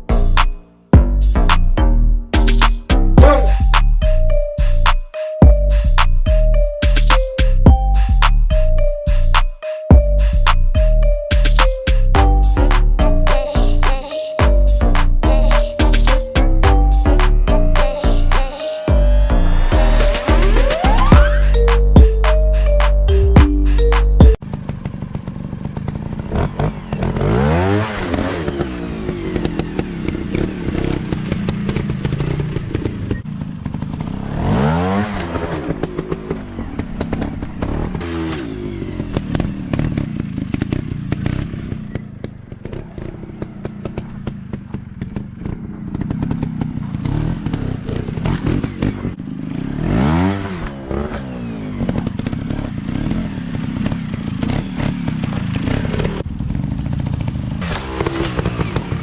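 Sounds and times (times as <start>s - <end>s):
dirt bike engines revving: 24.5s - 59.0s.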